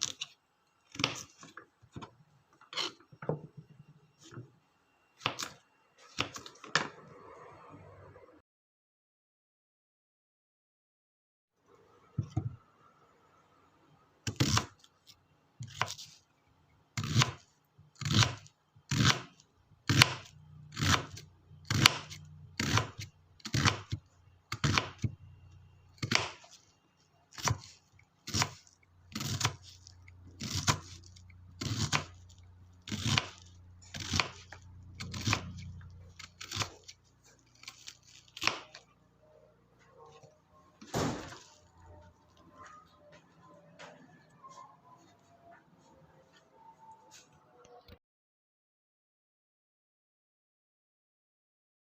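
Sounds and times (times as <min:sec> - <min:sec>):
knife chopping on cutting board: 0:19.9 - 0:25.1, 0:26.0 - 0:26.4, 0:28.3 - 0:29.7, 0:30.4 - 0:31.0, 0:31.6 - 0:32.1, 0:32.9 - 0:36.9.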